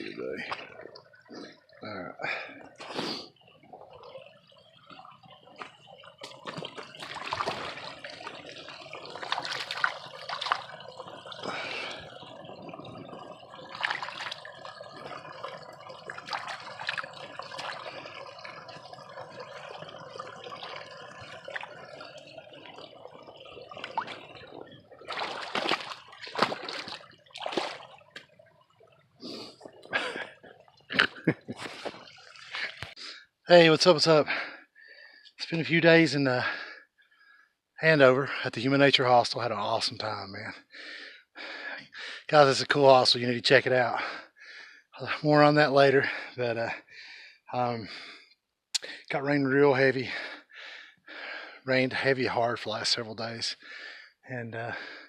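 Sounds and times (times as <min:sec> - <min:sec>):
water splashes: 0:00.0 - 0:34.6.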